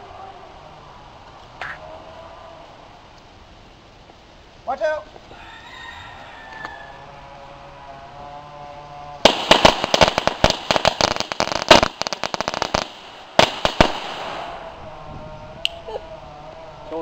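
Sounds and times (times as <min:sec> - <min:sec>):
firecrackers popping: 0:09.2 - 0:14.8.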